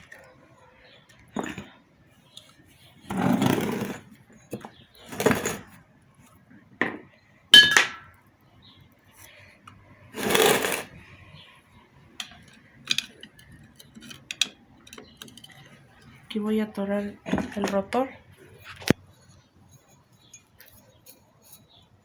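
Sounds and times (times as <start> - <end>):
metal parts scraping and rattling: 5.0 - 5.7, 10.2 - 11.0, 12.2 - 16.2
ringing metallic clink: 7.6 - 8.1.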